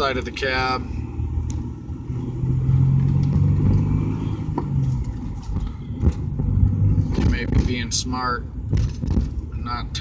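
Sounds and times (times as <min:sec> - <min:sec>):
car engine and road noise: 0:00.0 - 0:10.0.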